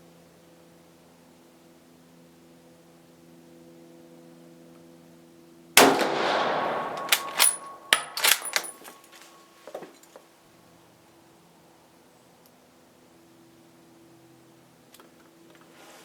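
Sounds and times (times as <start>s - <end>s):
rifle shot echoing: 5.8s - 9.0s
rifle bolt metallic clacks: 5.8s - 9.3s.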